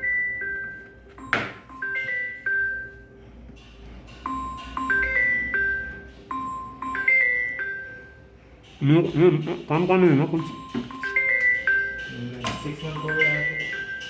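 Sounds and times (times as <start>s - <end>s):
electronic chime tune: 4.3s - 8.3s, 10.2s - 14.0s.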